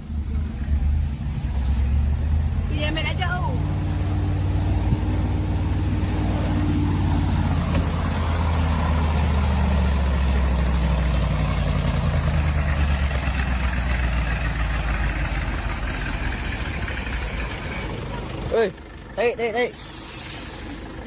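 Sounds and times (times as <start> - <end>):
truck diesel engine under load: 0.0 - 21.0.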